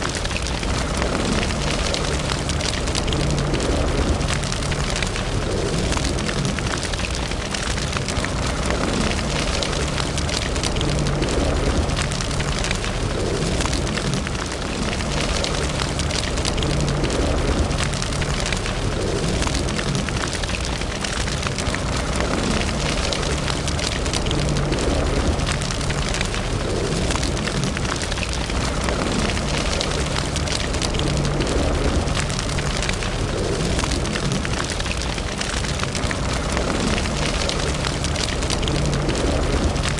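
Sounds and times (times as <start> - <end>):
fire crackling in a fireplace: 0.0 - 39.9.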